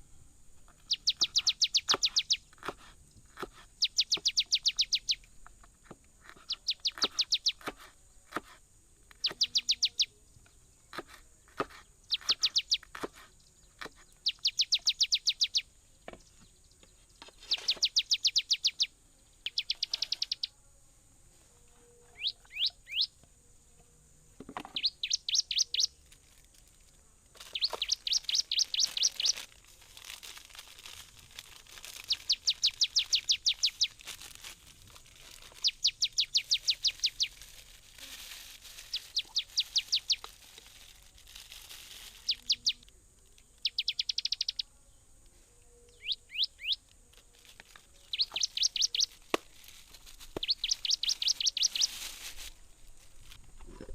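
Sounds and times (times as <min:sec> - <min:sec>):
bird trilling high chirps: 0:00.8 - 0:02.5, 0:03.8 - 0:05.2, 0:06.4 - 0:07.6, 0:09.1 - 0:10.2, 0:12.0 - 0:12.9, 0:14.1 - 0:16.4, 0:17.3 - 0:20.5, 0:22.2 - 0:23.2, 0:24.8 - 0:26.0, 0:27.5 - 0:29.5, 0:31.9 - 0:34.0, 0:35.3 - 0:37.4, 0:38.8 - 0:40.3, 0:42.1 - 0:42.8, 0:43.5 - 0:44.7, 0:45.8 - 0:46.8, 0:47.9 - 0:49.2, 0:50.4 - 0:52.0.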